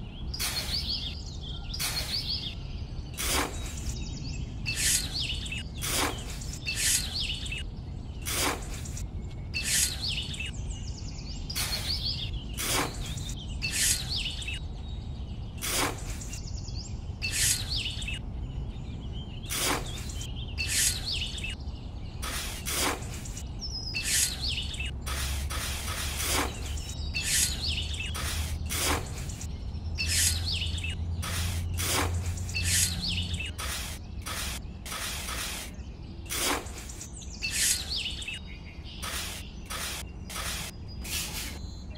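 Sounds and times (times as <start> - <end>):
birds chirping: 0.0 - 41.9
trowel scraping damp sand: 0.4 - 0.9, 1.8 - 2.3, 3.2 - 4.0, 5.8 - 7.2, 8.3 - 9.0, 11.6 - 14.1, 15.6 - 16.4, 19.5 - 21.1, 22.2 - 23.4, 24.0 - 30.6, 31.2 - 37.9, 39.0 - 41.6.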